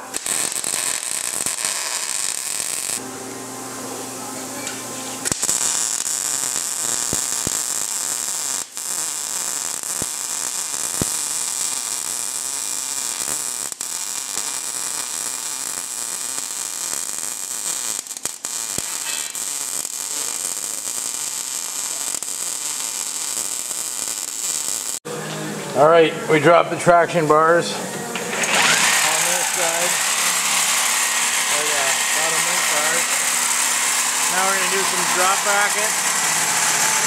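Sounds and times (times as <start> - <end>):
welder hissing: 0.0 - 3.0, 4.2 - 25.0, 28.3 - 37.0.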